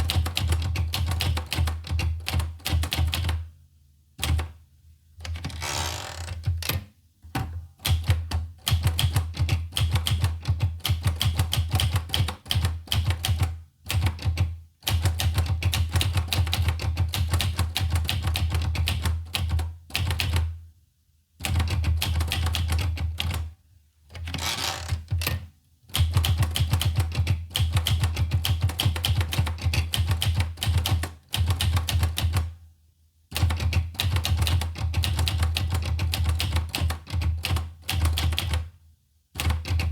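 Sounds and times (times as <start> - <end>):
manual typewriter typing: 0.0 - 3.4, 7.8 - 20.5, 21.4 - 23.5, 24.1 - 32.5, 33.3 - 38.7, 39.4 - 39.9.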